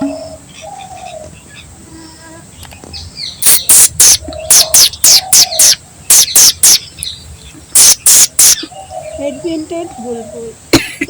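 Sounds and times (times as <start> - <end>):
bird harsh scratchy calls: 2.9 - 10.2.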